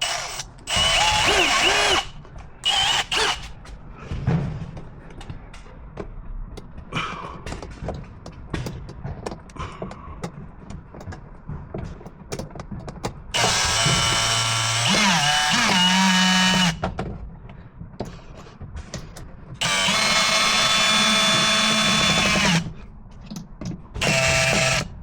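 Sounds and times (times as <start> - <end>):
power drill running: 0.0 - 3.6, 13.4 - 16.8, 19.6 - 22.8, 24.0 - 24.9.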